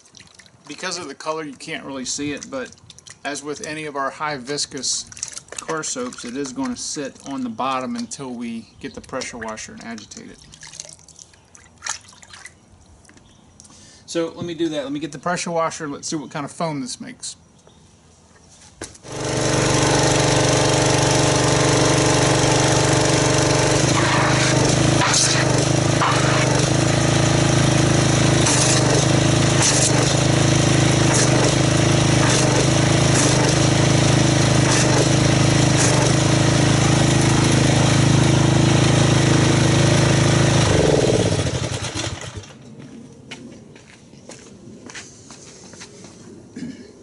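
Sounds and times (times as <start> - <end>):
pressure washer motor droning: 19.0 - 42.6
water jet hissing: 23.0 - 27.5.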